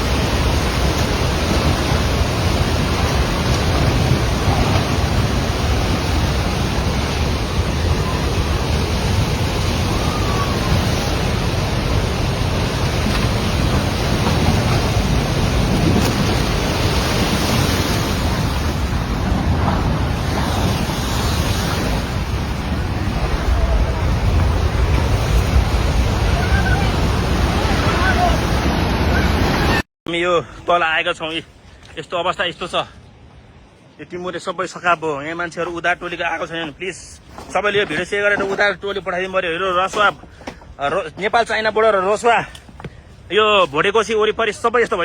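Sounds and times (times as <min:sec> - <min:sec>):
river water rushing: 0:00.0 - 0:29.8.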